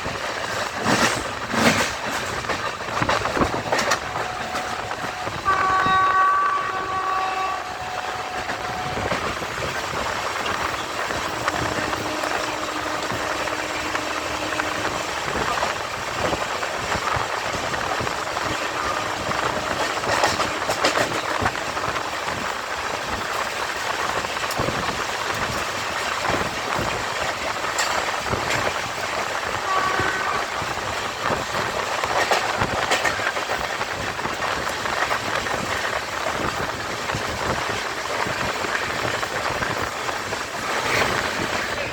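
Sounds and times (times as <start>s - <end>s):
wheels clicking over track joints: 0.0s - 7.4s, 8.1s - 41.9s
train wheels rattling on rails: 0.0s - 41.9s
train horn chord: 3.9s - 9.4s, 11.3s - 15.4s, 18.5s - 21.4s, 29.6s - 30.8s.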